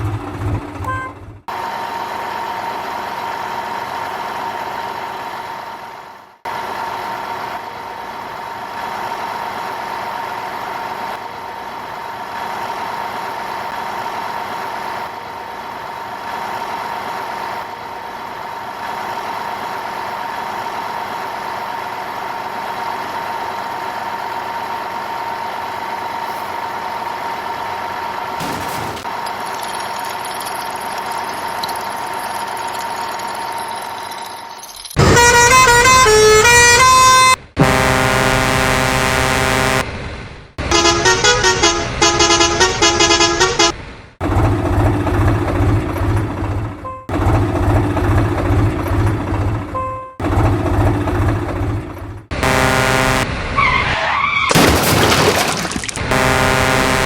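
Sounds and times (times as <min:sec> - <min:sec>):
vehicle engine pulsing: 0:00.0 - 0:53.8, 0:56.0 - 0:57.0
truck horn blast: 0:00.8 - 0:01.3, 0:35.0 - 0:39.9, 0:40.6 - 0:43.8, 0:52.3 - 0:54.2, 0:56.0 - 0:57.0
musical horn playing a tune: 0:35.0 - 0:39.8, 0:40.6 - 0:43.7, 0:52.4 - 0:53.3, 0:56.1 - 0:57.0.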